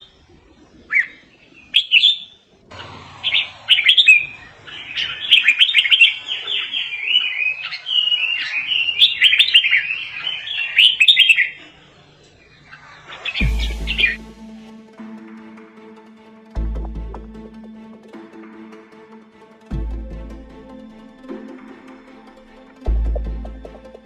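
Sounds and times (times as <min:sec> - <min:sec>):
birds chirping: 0:00.0 - 0:14.6.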